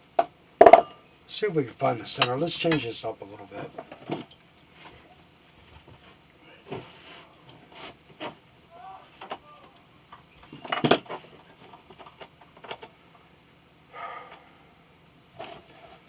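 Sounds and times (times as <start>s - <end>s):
metal tools clattering: 10.5s - 12.2s.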